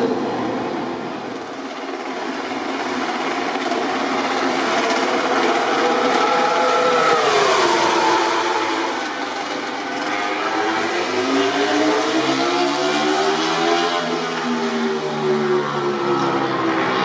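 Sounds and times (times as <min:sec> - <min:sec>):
race motorcycle passing at speed: 0:05.1 - 0:15.0.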